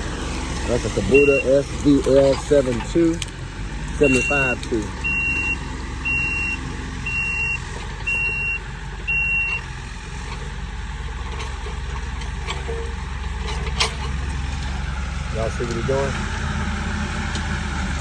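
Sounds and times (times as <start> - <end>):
diesel engine running: 0.0 - 18.0
reverse alarm beeping: 1.1 - 1.6, 4.0 - 9.6.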